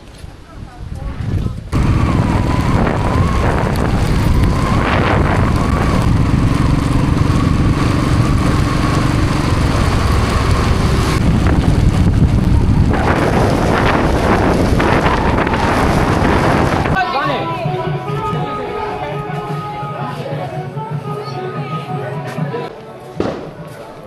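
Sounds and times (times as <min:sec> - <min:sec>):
wind buffeting microphone: 0:00.0 - 0:18.6
motorcycle engine running: 0:01.7 - 0:17.0.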